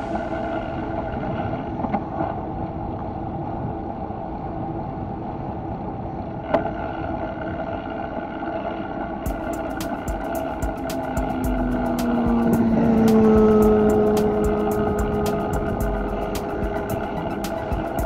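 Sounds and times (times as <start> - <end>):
bicycle rolling and wind noise: 0.0 - 18.0
constant hum: 0.0 - 18.0
quick ticking: 9.3 - 18.0.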